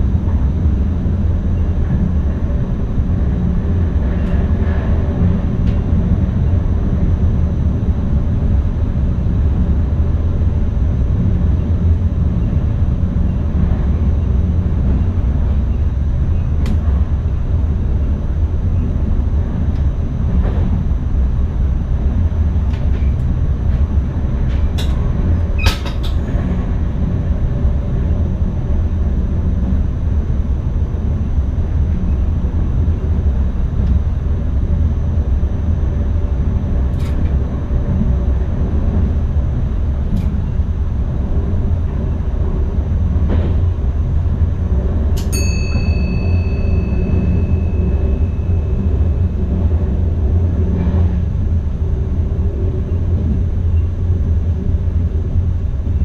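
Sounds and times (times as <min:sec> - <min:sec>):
train wheels rumbling on rails: 0:00.0 - 0:56.0
high tone: 0:45.3 - 0:49.3.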